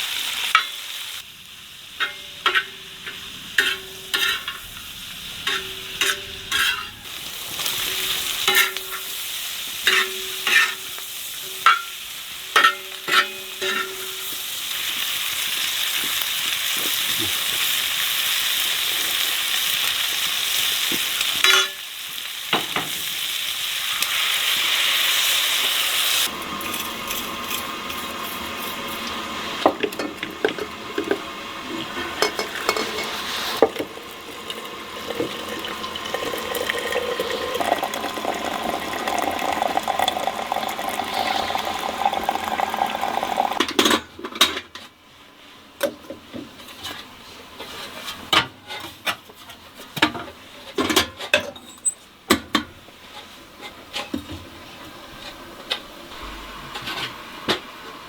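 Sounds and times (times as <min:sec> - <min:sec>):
food sizzling in a pan: 0:00.0 - 0:43.8
utensils stirring and clinking: 0:02.0 - 0:09.2, 0:09.8 - 0:11.9, 0:12.5 - 0:14.4, 0:26.2 - 0:44.6.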